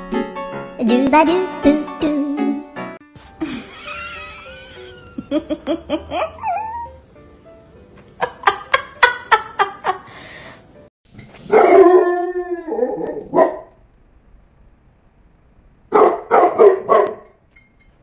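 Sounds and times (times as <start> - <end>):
dog barking: 11.5 - 12.0, 13.2 - 13.8, 15.9 - 17.3
dog howling: 11.6 - 13.6.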